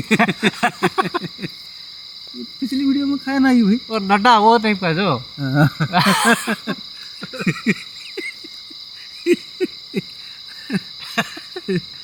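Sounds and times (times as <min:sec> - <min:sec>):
crickets droning: 0:00.0 - 0:12.0.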